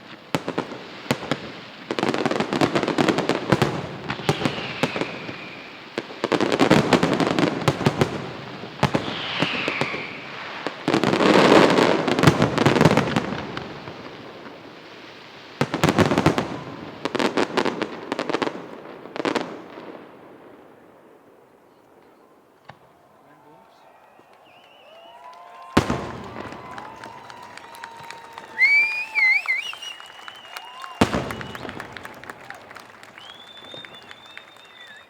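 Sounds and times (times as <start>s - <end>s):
fireworks bursts crackling: 0.0s - 21.3s, 22.5s - 35.0s
falling firework whistle: 3.5s - 13.4s, 23.7s - 35.0s.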